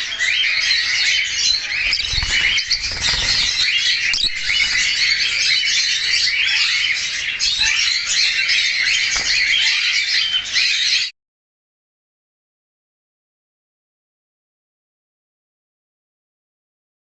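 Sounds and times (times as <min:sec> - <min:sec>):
budgerigars chattering: 0:00.0 - 0:11.1.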